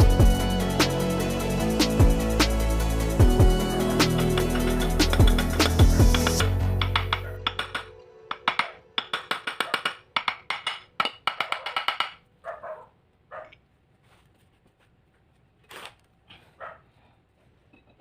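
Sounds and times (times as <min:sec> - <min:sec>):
rapid sharp clicks: 0:03.9 - 0:10.5.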